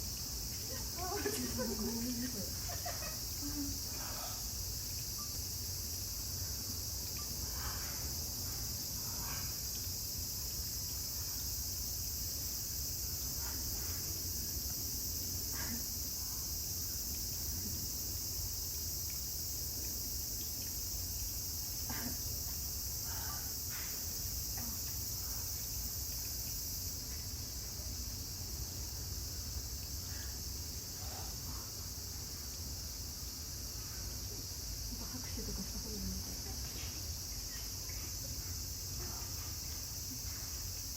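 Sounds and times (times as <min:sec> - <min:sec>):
insects chorus: 0:00.0 - 0:40.9.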